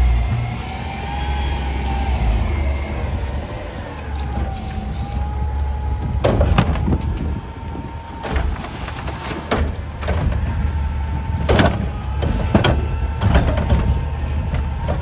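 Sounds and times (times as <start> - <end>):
garbage truck engine rumbling: 0.0 - 15.0
metal clanking: 3.1 - 15.0.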